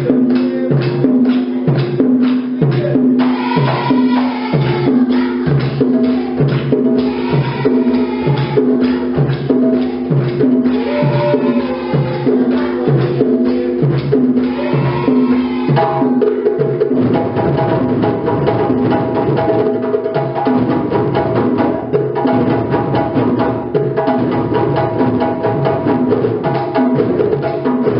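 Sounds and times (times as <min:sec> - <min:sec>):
djembe drums playing: 0:00.0 - 0:27.9.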